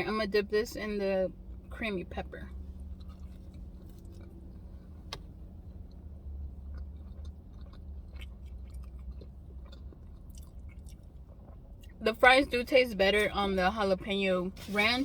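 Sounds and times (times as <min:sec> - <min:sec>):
steady low hum: 0:00.0 - 0:15.0
person chewing fries: 0:02.6 - 0:12.0.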